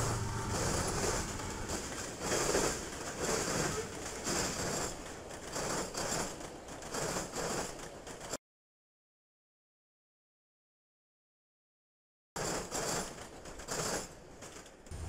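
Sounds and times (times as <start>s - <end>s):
railcars wheel-on-rail noise: 0.0s - 8.4s, 12.4s - 15.0s.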